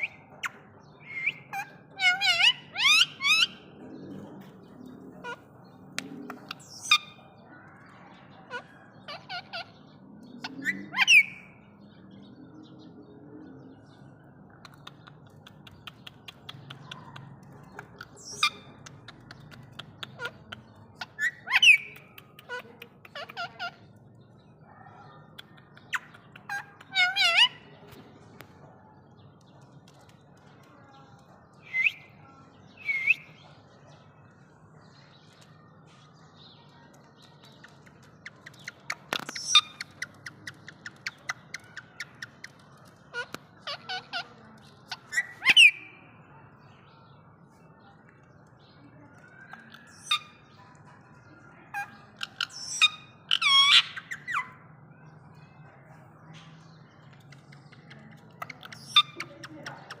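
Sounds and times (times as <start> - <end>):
parakeet squawks and chirps: 0.0 - 3.6, 6.3 - 7.2, 8.5 - 11.6, 15.7 - 24.0, 25.4 - 27.8, 38.3 - 46.0, 49.2 - 50.5, 51.7 - 54.6, 58.4 - 59.3
parakeet rapid clicks: 14.5 - 20.8, 21.6 - 23.7, 25.3 - 27.4, 37.0 - 43.5, 57.0 - 60.0.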